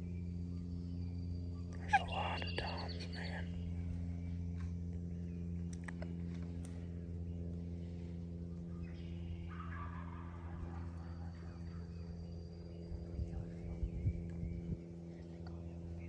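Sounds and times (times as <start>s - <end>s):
steady low hum: 0.0s - 16.0s
wild turkey gobbling: 9.4s - 11.5s.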